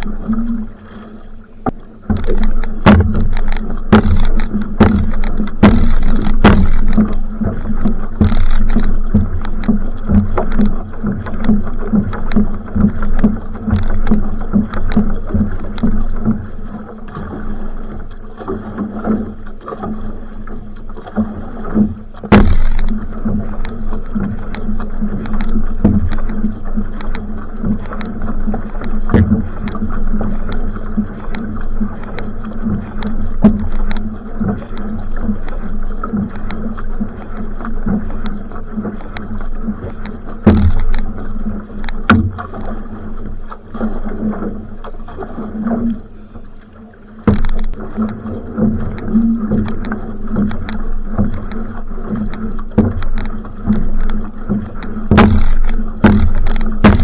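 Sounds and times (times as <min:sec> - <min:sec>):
paddle strokes in water: 0:00.0 - 0:57.0
water rushing along hull: 0:00.0 - 0:57.0
sharp splash or knock: 0:01.7 - 0:16.4, 0:21.0 - 0:28.2, 0:28.8 - 0:34.1, 0:39.8 - 0:41.2, 0:41.8 - 0:42.8, 0:47.2 - 0:57.0.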